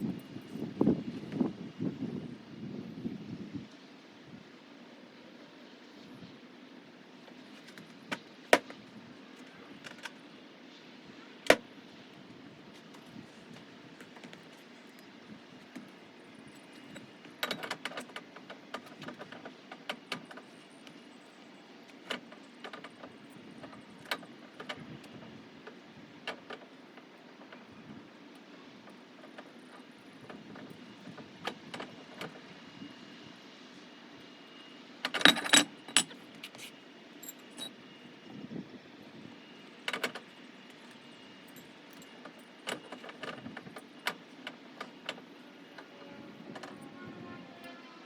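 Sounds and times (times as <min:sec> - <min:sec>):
clanks and rattles: 0:35.1 - 0:37.7.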